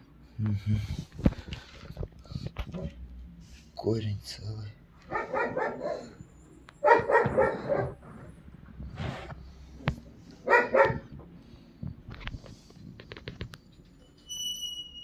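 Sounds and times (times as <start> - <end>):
dog barking: 5.0 - 8.3, 10.4 - 11.1.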